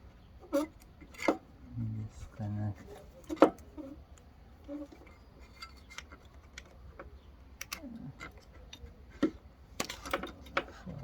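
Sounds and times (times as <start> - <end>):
small parts clicking and tapping: 3.2 - 10.8.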